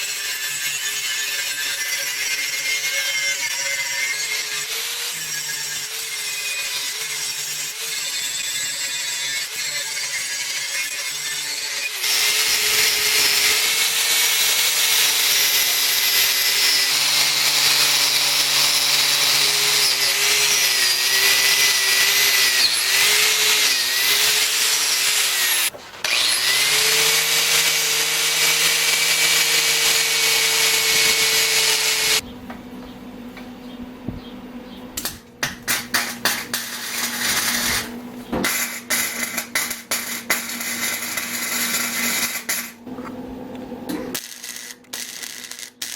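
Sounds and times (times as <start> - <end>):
power tool running on steel: 0.0 - 32.2.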